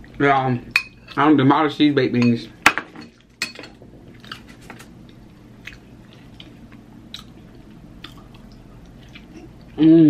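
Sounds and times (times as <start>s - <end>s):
person chewing: 4.1s - 9.8s.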